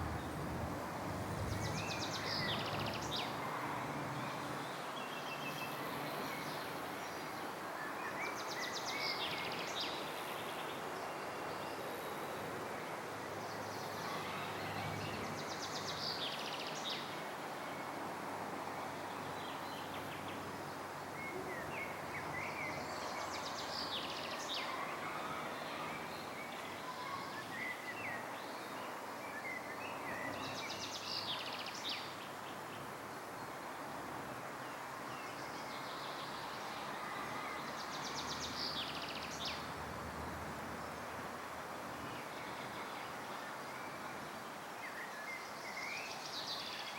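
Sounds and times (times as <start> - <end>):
songbird chirps and trill: 0.0 - 5.6
rushing outdoor background noise: 0.0 - 46.9.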